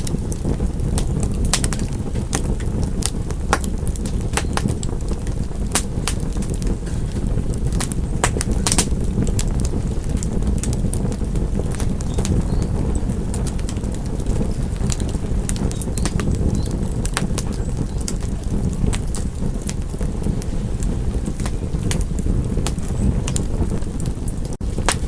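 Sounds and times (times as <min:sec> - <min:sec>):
fire crackling and popping: 0:00.0 - 0:25.0
wood fire rumbling: 0:00.0 - 0:25.0.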